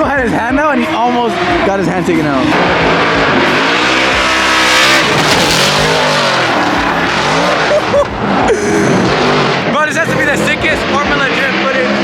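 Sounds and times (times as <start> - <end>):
car engines revving high: 0.0 - 12.0
loud rushing noise: 2.6 - 11.1
tyres screeching: 3.7 - 9.3.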